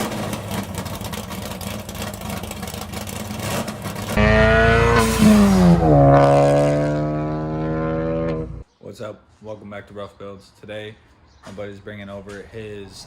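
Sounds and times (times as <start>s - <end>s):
car engine and exhaust running: 0.0s - 8.6s.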